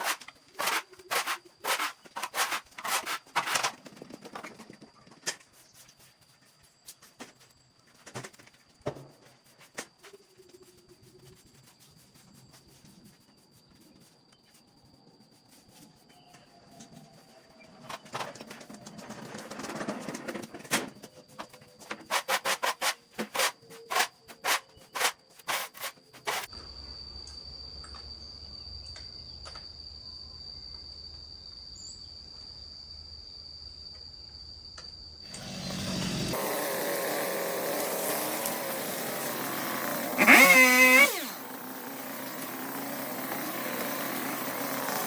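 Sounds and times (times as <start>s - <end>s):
rough scraping on a surface: 0.0s - 3.7s
machine-like noise: 35.3s - 45.0s
insect trilling: 37.9s - 45.0s.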